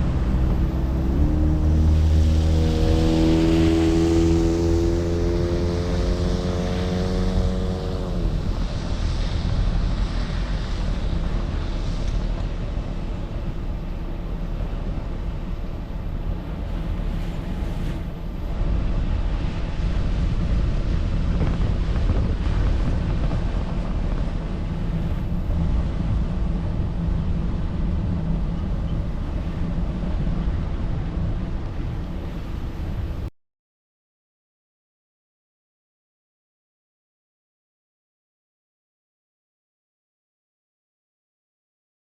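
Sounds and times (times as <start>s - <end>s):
moving vehicle rumble: 0.0s - 33.3s
wind buffeting microphone: 0.0s - 33.3s.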